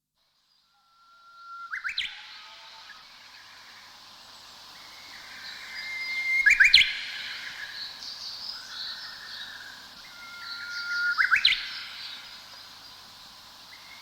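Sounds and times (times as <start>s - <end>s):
faint high bird chirps: 0.6s - 3.2s, 4.5s - 13.0s
songbird singing whistled phrase: 1.5s - 2.4s, 5.0s - 7.9s, 8.6s - 12.4s.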